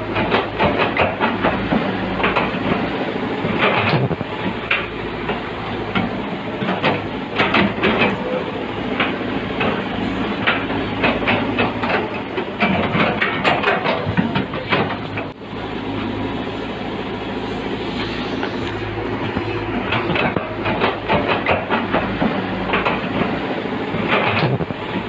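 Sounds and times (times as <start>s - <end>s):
heavy diesel machinery running: 0.0s - 25.0s
metallic clanks and knocks: 3.5s - 8.4s, 10.4s - 15.3s, 19.2s - 23.4s.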